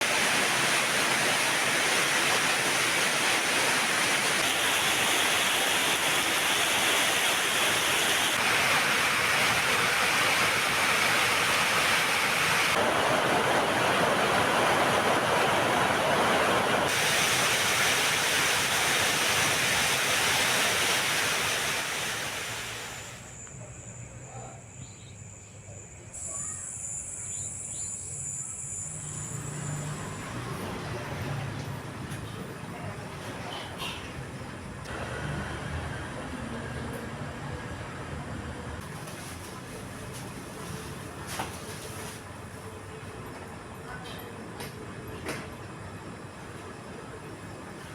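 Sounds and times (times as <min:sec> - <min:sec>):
heavy rain pouring: 0:00.0 - 0:23.3
faint chirps: 0:23.1 - 0:30.4.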